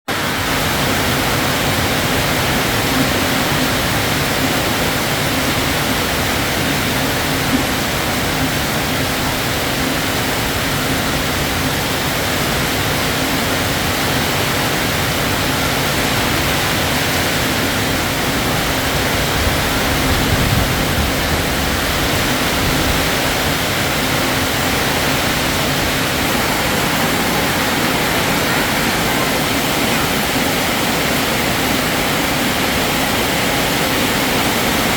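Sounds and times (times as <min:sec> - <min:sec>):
steady rain: 0:00.1 - 0:34.9.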